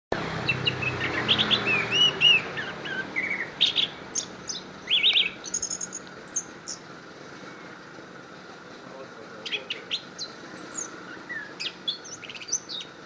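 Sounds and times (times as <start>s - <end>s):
thrush singing: 0.1s - 6.9s.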